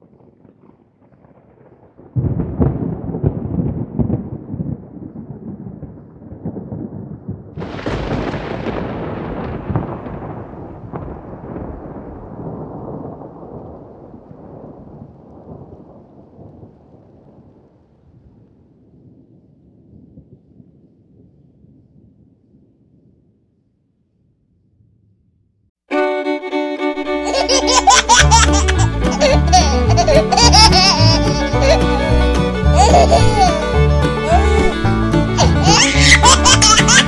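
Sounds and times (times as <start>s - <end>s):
rain: 0.0s - 23.2s, 27.0s - 37.0s
sharp thunderclap: 0.0s - 23.3s
thunder rumbling: 0.0s - 25.2s, 27.0s - 37.0s.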